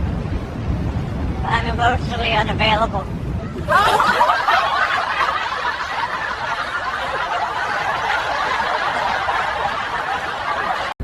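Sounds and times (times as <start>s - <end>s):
group of people laughing: 3.6s - 11.0s.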